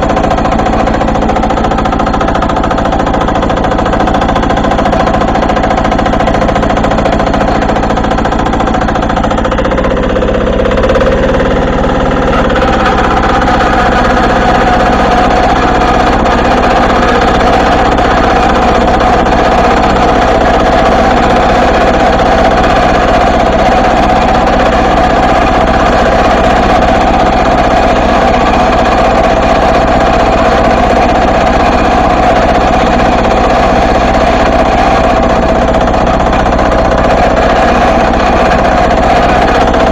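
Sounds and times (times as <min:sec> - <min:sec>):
diesel tractor engine under load: 0:00.0 - 0:39.9.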